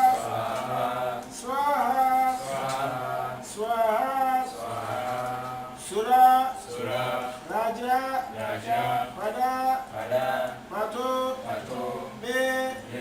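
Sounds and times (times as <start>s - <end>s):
person chanting a melody: 0.0s - 13.0s.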